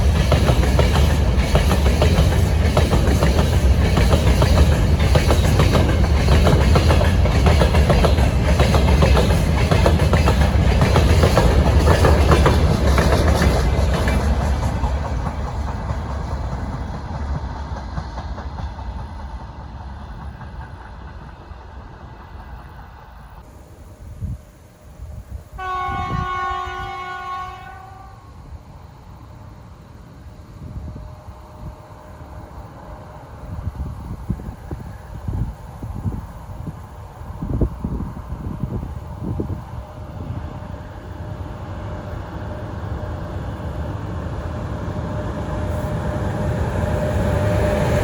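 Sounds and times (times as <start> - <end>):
freight train wheels clattering: 0.0 - 23.4.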